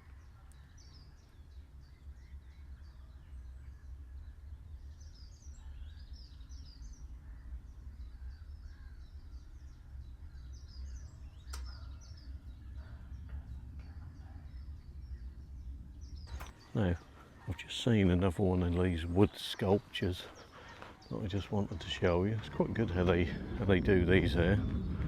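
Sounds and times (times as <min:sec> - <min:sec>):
small birds chirping: 0:00.0 - 0:25.0
steady low rumble: 0:00.0 - 0:25.0
sharp click: 0:11.5 - 0:11.8.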